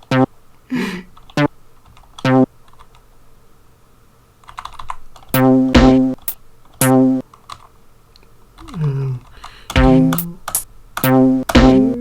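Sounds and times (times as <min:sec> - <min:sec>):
short pitched sample notes: 0:00.0 - 0:00.3, 0:02.2 - 0:02.5, 0:09.8 - 0:10.4
computer keyboard clicks: 0:04.4 - 0:05.3, 0:07.3 - 0:11.1.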